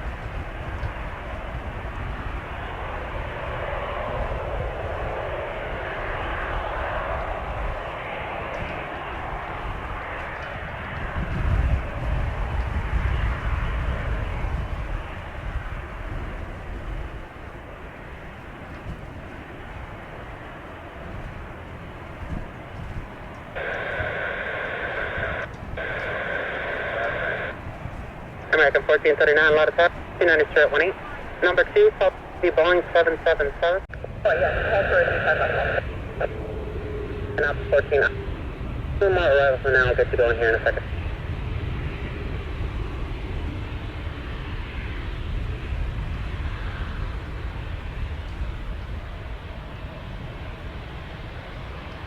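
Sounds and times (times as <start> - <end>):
wind rumble on microphone: 0.0 - 52.0
radio static hiss: 23.5 - 27.7, 28.4 - 36.5, 37.3 - 38.4, 39.0 - 41.1.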